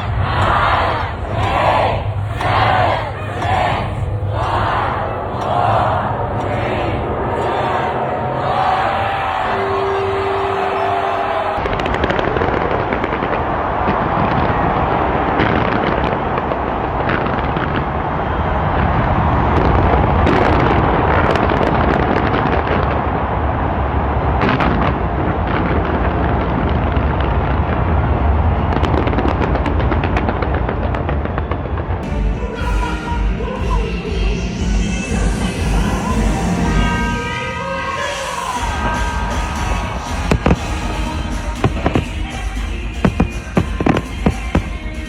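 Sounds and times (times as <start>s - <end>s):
deep fireworks booms: 0.0s - 9.4s, 11.6s - 37.0s, 38.5s - 45.0s
fireworks bangs and crackles: 11.6s - 37.1s, 37.9s - 45.0s.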